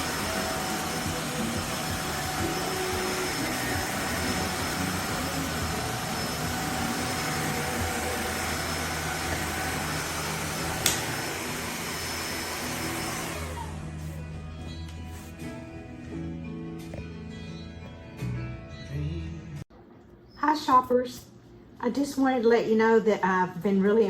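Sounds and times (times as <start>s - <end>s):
vacuum cleaner running: 0.0s - 16.3s
sharp click: 10.8s - 11.1s.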